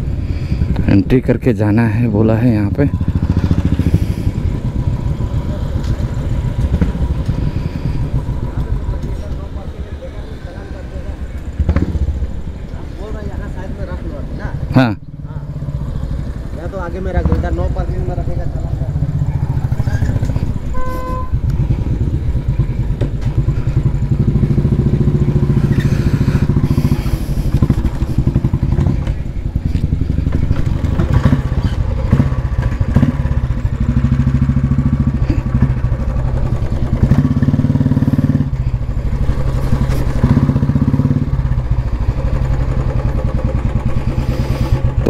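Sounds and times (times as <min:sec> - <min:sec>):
motorcycle engine revving: 0:00.0 - 0:45.0
horn beep: 0:20.6 - 0:21.5.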